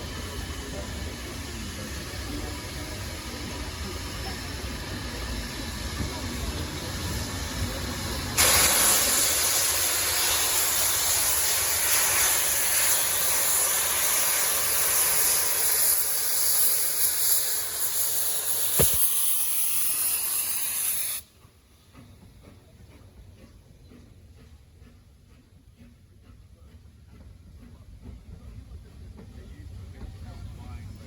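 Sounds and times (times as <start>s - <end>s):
steam venting hiss: 0.0s - 21.4s
brief click: 18.8s - 19.1s.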